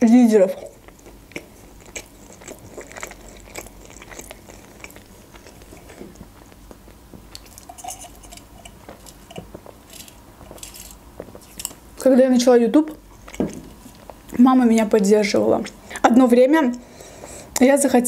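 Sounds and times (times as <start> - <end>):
chewing with wet clicks: 0.6 - 11.8.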